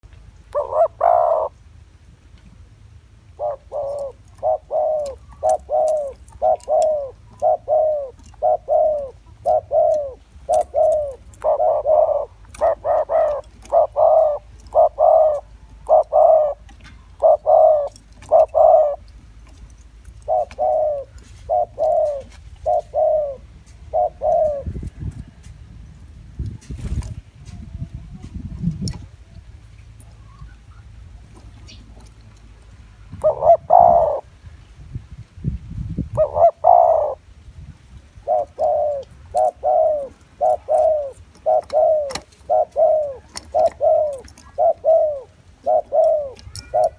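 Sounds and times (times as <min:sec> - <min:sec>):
dove cooing: 0:00.4 - 0:01.6, 0:03.3 - 0:25.5, 0:32.7 - 0:34.4, 0:36.0 - 0:37.3, 0:38.1 - 0:46.9.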